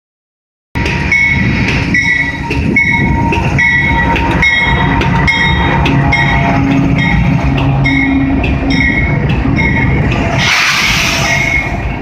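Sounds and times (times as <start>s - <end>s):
crossing bell ringing: 0.8s - 10.6s
train engine and wheel rumble: 0.8s - 12.0s.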